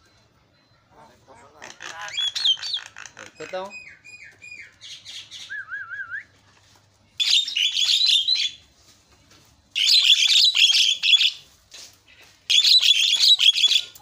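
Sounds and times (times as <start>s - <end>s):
bird chattering: 1.0s - 5.5s, 9.8s - 11.4s, 12.5s - 14.0s.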